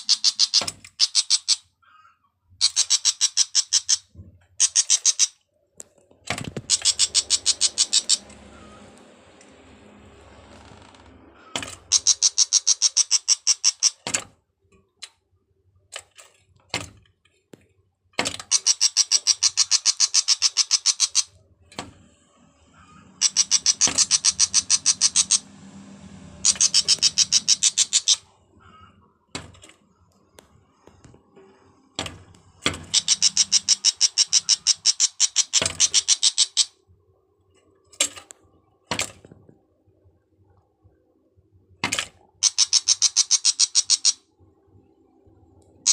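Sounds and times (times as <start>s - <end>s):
bird chattering call: 0.0s - 1.6s, 6.7s - 8.8s, 11.9s - 14.0s, 18.5s - 21.3s, 23.2s - 25.4s, 26.4s - 29.0s, 32.9s - 36.8s, 42.4s - 44.2s
sharp bird clicks: 32.9s - 36.7s.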